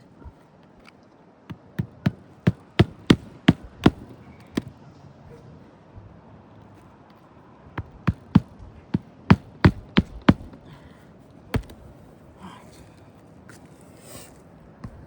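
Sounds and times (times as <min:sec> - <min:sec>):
sharp knocks: 0:01.5 - 0:04.7, 0:07.8 - 0:10.6, 0:11.6 - 0:11.8.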